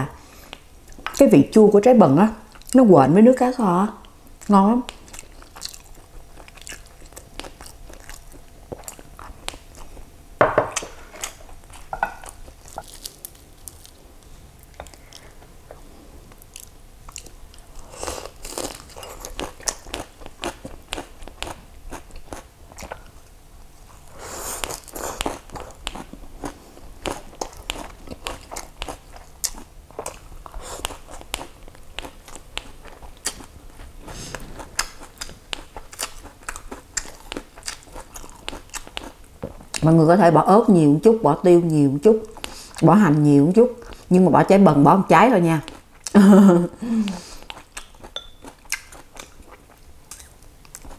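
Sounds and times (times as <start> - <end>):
person chewing and crunching: 4.9 - 10.1, 10.7 - 23.2, 23.9 - 39.9, 47.0 - 50.9.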